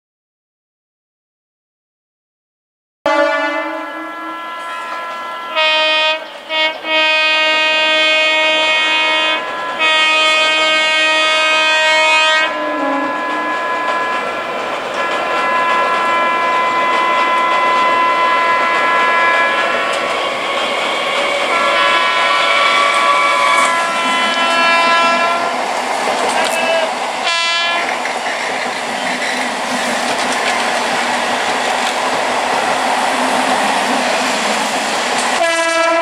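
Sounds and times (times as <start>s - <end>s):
train horn blasts: 3.1s - 20.0s, 21.4s - 25.7s, 26.4s - 28.0s, 35.4s - 36.0s
train running past on rails: 3.1s - 36.0s.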